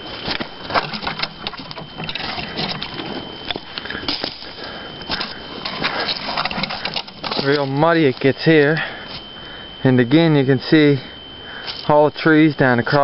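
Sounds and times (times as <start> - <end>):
footsteps on muddy path: 0.0 - 9.2
brush rustling: 0.0 - 9.6.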